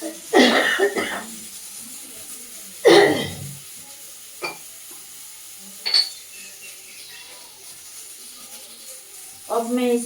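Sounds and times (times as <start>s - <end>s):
faint steady hiss: 0.0s - 10.0s
spoon clinking against bowl: 4.4s - 4.6s, 5.8s - 7.3s.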